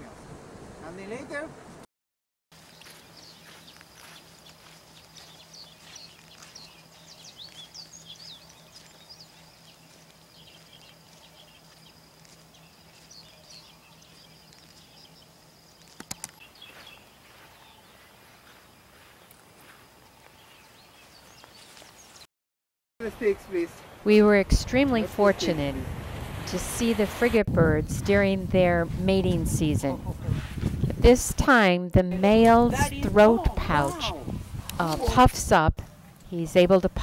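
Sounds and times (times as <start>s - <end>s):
small birds chirping: 2.6s - 22.3s
sharp clicks: 15.8s - 16.4s.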